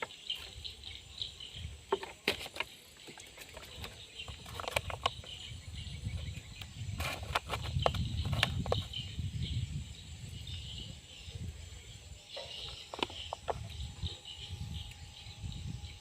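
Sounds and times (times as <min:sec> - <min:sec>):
faint insect chirping: 0:00.0 - 0:16.0
fishing gear clicking and tapping: 0:01.9 - 0:05.4.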